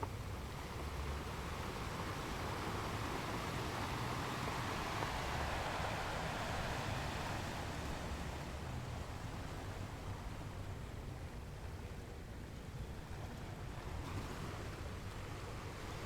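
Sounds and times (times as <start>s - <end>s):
sea waves surf: 0.0s - 10.1s.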